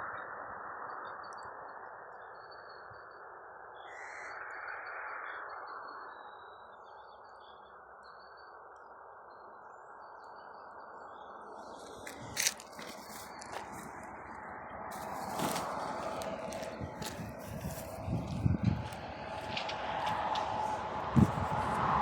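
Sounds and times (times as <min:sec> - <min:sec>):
songbirds chirping: 0:06.3 - 0:20.9
low rushing background noise: 0:10.8 - 0:22.0.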